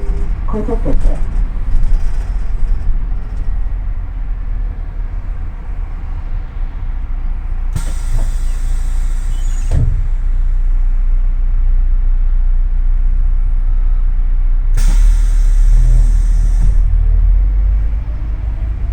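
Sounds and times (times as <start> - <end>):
bus engine rumble: 0.0 - 18.9
compressed air hiss: 7.7 - 10.6, 14.8 - 16.9.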